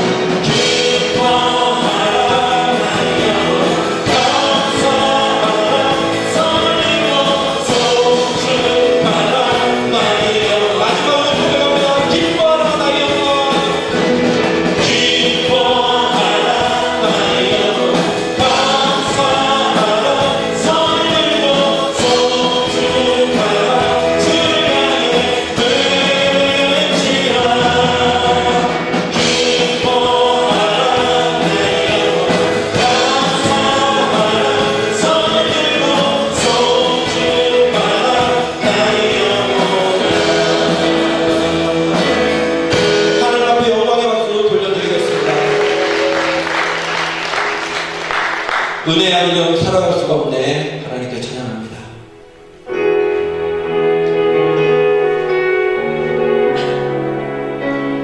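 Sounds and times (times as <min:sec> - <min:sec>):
congregation singing: 0:00.0 - 0:58.0
instrumental accompaniment: 0:00.0 - 0:58.0.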